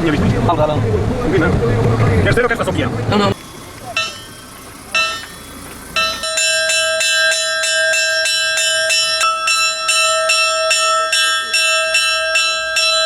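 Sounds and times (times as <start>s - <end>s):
church bells pealing: 3.9s - 13.0s.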